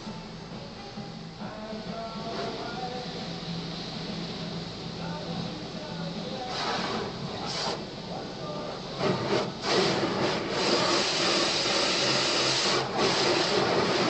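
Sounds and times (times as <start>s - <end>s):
car wash machinery: 0.0s - 14.0s
water spray hissing: 1.7s - 14.0s.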